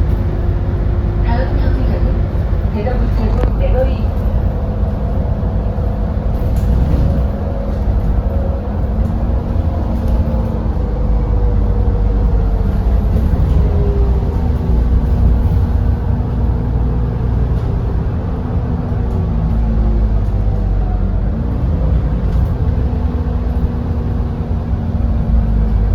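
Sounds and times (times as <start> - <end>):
bus engine rumbling: 0.0 - 25.9.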